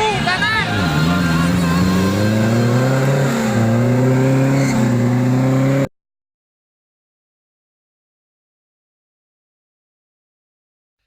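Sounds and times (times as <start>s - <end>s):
off-road vehicle engine revving: 0.0s - 5.9s.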